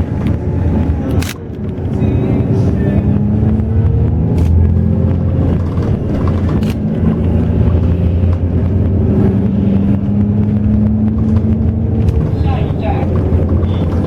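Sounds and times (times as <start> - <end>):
bus diesel engine running: 0.0 - 14.0.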